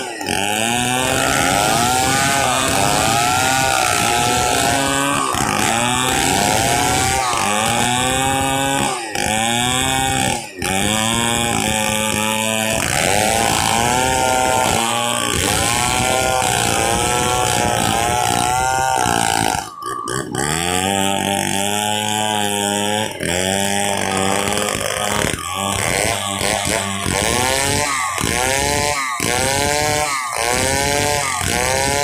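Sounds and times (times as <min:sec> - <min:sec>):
chainsaw sawing a log: 0:00.0 - 0:32.0.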